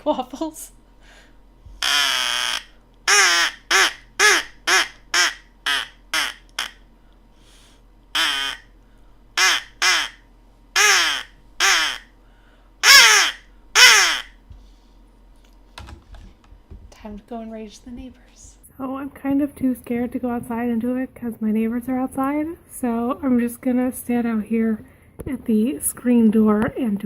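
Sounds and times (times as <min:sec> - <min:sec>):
crow call caws: 0:01.8 - 0:06.8, 0:08.2 - 0:08.7, 0:09.4 - 0:10.2, 0:10.8 - 0:12.1, 0:12.8 - 0:14.4.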